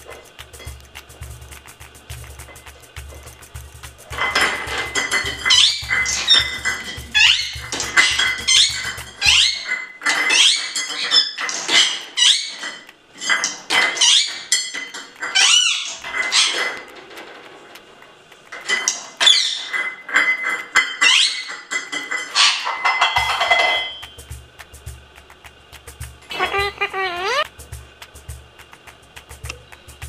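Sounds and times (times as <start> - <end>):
small bowl clinking: 4.1 - 7.1, 19.5 - 24.1
parrot squawking: 4.1 - 12.8, 13.8 - 14.6, 15.2 - 16.8, 19.2 - 19.8, 20.9 - 21.7, 22.3 - 24.0, 26.2 - 27.5.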